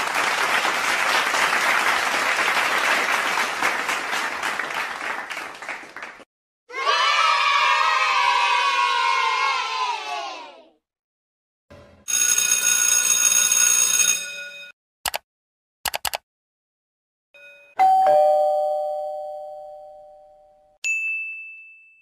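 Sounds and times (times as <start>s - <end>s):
electric school bell ringing: 12.0s - 14.8s, 17.4s - 22.0s
computer mouse clicking: 15.9s - 16.2s
two-tone doorbell chime: 17.4s - 22.0s.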